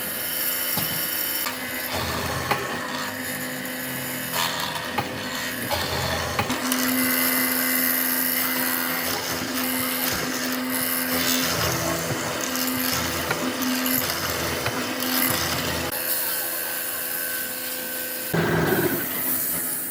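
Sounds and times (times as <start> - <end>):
power tool whining on wood: 0.0 - 19.9.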